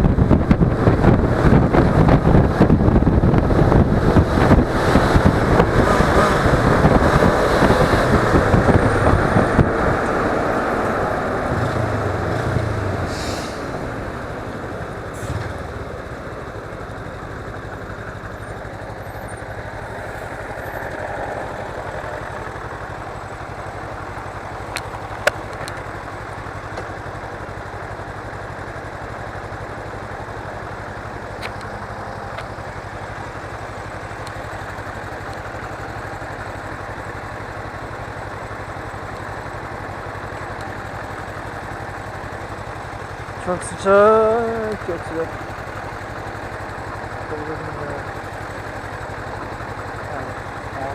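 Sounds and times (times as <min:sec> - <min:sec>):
wind rush: 0:00.0 - 0:14.6
motorcycle engine idling: 0:00.0 - 0:50.9.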